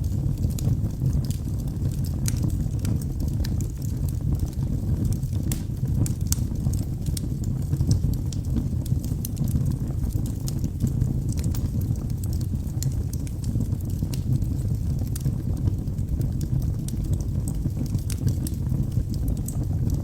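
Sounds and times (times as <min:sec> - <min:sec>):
burning logs crackling and popping: 0:00.0 - 0:20.0
fireplace flames rumbling: 0:00.0 - 0:20.0.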